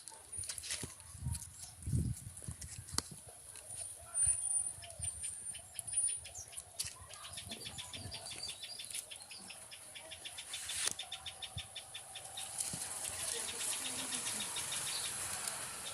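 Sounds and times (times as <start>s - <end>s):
bird chicks chirping: 4.6s - 15.9s.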